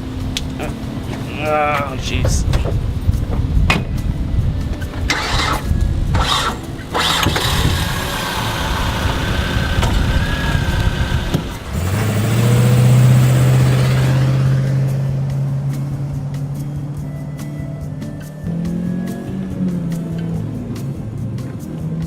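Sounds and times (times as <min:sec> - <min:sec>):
car engine cranking: 0:00.0 - 0:22.0
car engine running: 0:05.0 - 0:17.2.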